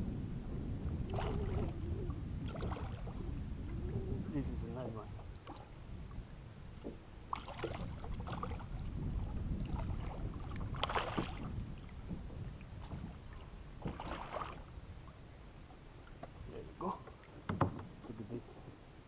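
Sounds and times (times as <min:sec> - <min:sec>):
wind rumble on microphone: 0:00.0 - 0:16.9
fish splashing in water: 0:09.7 - 0:11.5.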